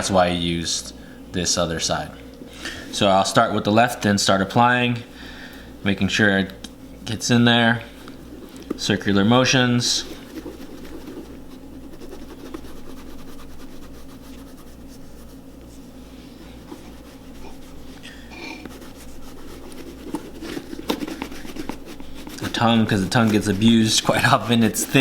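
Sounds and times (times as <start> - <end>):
cloth rubbing leather boot: 7.8 - 25.0.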